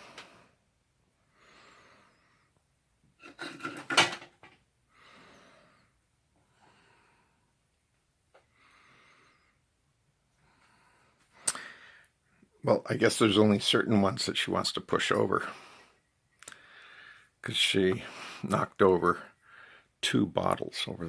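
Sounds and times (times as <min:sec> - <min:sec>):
wheezy breathing: 0:01.2 - 0:02.6, 0:04.9 - 0:07.6, 0:08.4 - 0:09.7, 0:10.3 - 0:12.2, 0:15.4 - 0:17.4, 0:19.3 - 0:20.0
knocks and rattles: 0:03.3 - 0:04.6.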